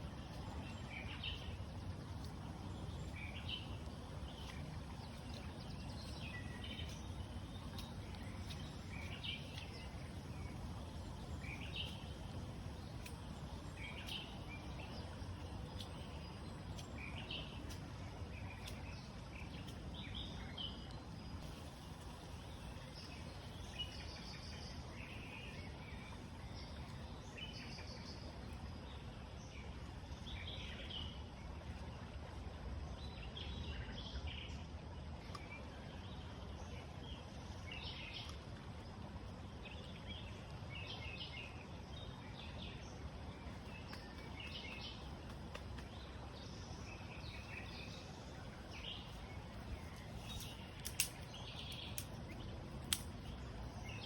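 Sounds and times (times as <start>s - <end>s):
low outdoor rumble: 0.0s - 29.0s, 38.5s - 54.0s
birds chirping: 43.5s - 54.0s.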